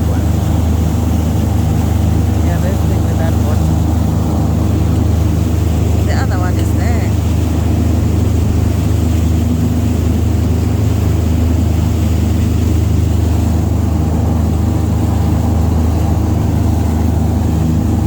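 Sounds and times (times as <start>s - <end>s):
engine droning steadily: 0.0s - 18.0s.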